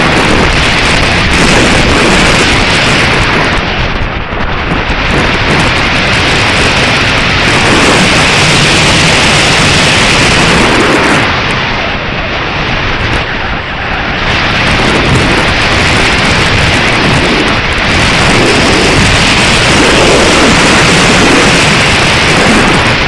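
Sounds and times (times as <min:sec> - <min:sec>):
strong wind buffeting microphone: 0:00.0 - 0:23.0.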